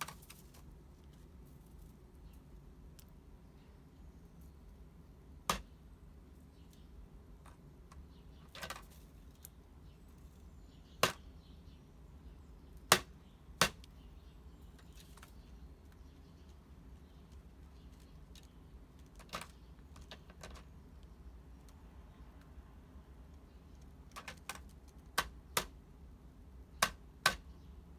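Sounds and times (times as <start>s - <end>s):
beak knocking on plastic box: 26.8s - 27.5s.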